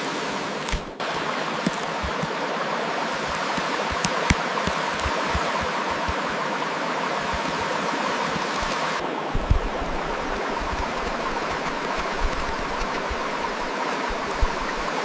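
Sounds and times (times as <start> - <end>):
steady rushing noise: 0.0 - 15.0
soft low thuds: 9.3 - 14.9.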